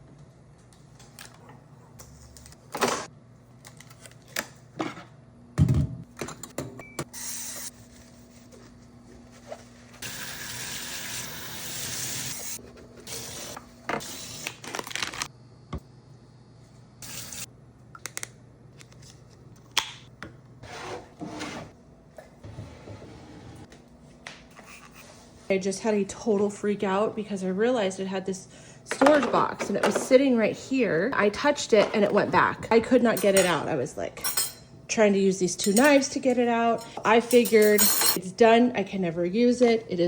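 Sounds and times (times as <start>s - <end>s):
faint steady hum: 21.8s - 37.6s.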